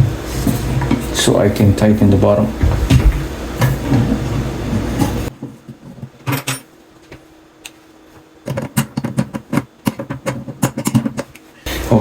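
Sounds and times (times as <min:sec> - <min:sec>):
loud handling noise: 0:02.5 - 0:04.1.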